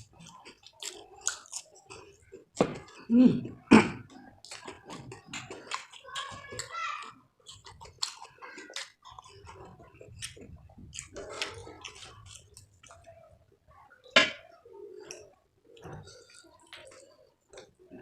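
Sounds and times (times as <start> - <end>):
person chewing food: 0.0 - 13.2, 14.0 - 18.0.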